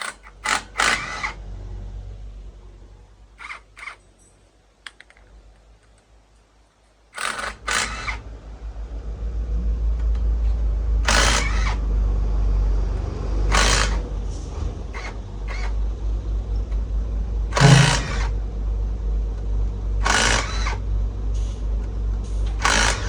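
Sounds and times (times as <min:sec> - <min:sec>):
motor rumbling: 0:07.3 - 0:23.0.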